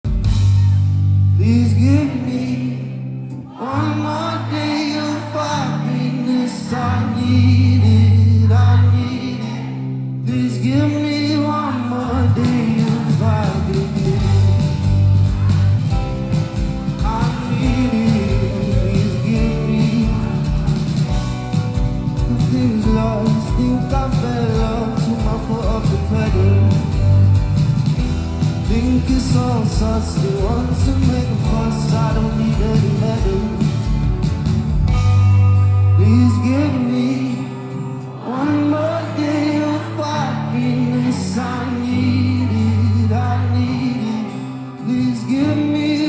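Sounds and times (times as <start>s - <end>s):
sustained bass notes: 0.0s - 3.6s, 12.0s - 37.2s
man singing slow song: 1.3s - 16.0s, 16.9s - 21.1s, 22.2s - 27.3s, 28.4s - 34.1s, 35.6s - 46.0s
drum beat: 12.5s - 35.2s.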